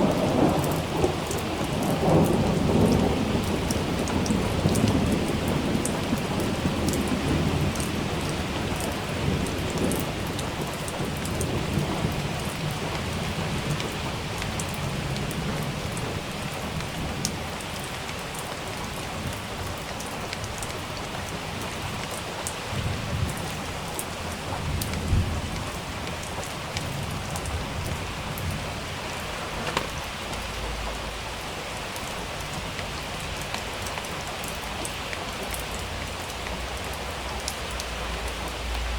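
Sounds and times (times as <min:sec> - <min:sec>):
low rolling thunder: 0:00.0 - 0:17.6, 0:22.7 - 0:31.4
rain falling: 0:00.0 - 0:38.9.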